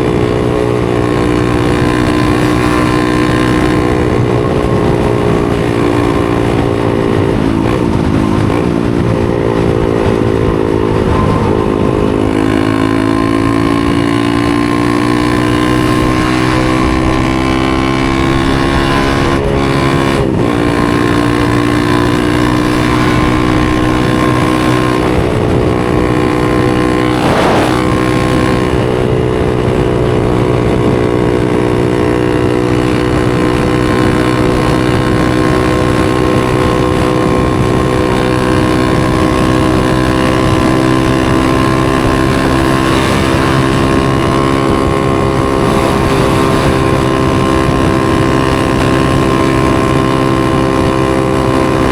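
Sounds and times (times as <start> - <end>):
single-cylinder engine running: 0.0 - 51.9.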